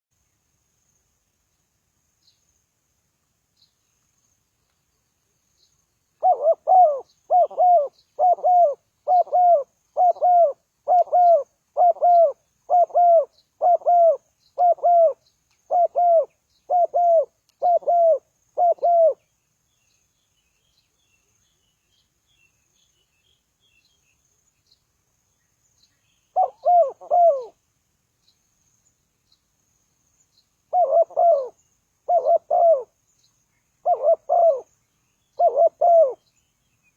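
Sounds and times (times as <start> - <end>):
dove cooing: 6.2 - 19.2, 26.4 - 27.6, 30.7 - 32.9, 33.8 - 34.7, 35.4 - 36.2.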